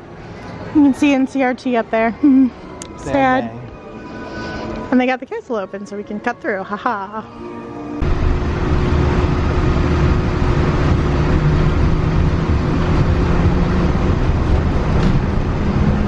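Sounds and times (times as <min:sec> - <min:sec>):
monorail rumble: 0:07.9 - 0:16.0
motor hum: 0:08.0 - 0:16.0.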